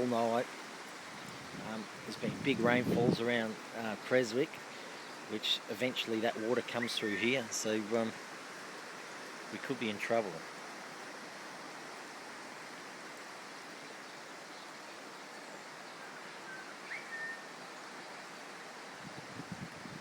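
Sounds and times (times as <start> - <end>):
floodwater rushing: 0.0 - 20.0
faint chirp: 13.7 - 18.4.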